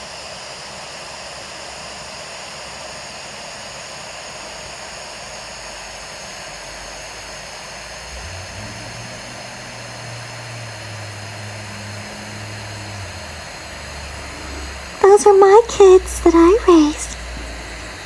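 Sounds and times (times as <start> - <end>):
low engine drone: 8.1 - 15.0
outdoor microphone hiss: 12.1 - 17.9.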